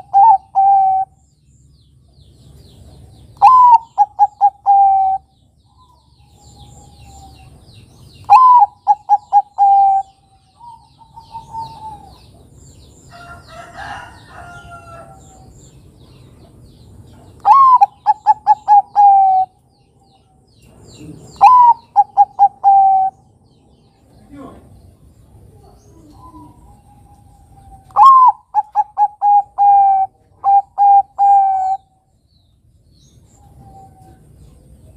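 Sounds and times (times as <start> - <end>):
dove cooing: 0.0 - 1.2, 3.4 - 7.6, 8.2 - 12.5, 17.4 - 19.6, 21.0 - 23.3, 25.5 - 32.0, 33.4 - 34.7
faint bird chirps: 17.1 - 34.9.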